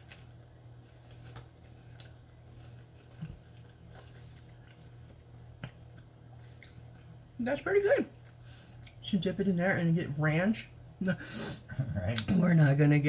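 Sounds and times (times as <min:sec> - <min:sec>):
person chewing quietly: 0:00.0 - 0:07.3, 0:08.2 - 0:09.0
steady low hum: 0:00.0 - 0:13.0.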